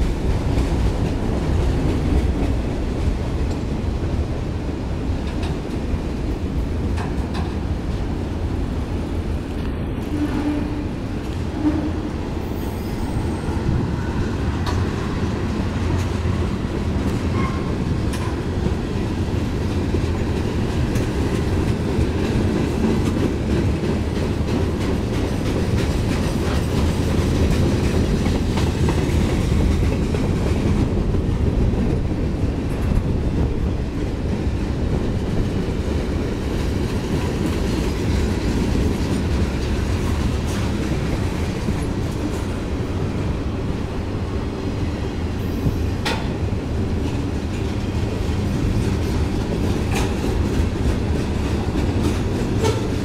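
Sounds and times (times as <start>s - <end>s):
freight train wheels clickety-clack: 0.0s - 53.0s.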